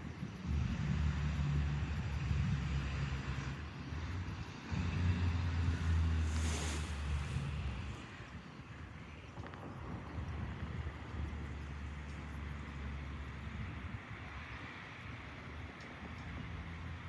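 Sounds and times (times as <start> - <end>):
steam locomotive rumble: 0.0 - 17.0
steam hiss: 4.7 - 8.2.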